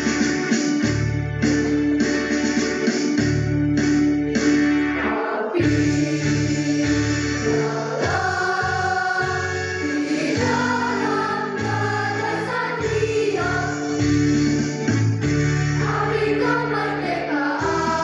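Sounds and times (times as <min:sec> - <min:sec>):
choir singing held notes: 0:05.0 - 0:14.9, 0:15.6 - 0:18.0.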